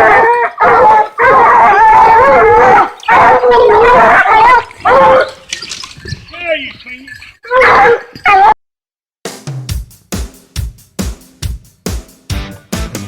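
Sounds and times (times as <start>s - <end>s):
hound baying: 0.0s - 5.5s, 7.5s - 8.6s.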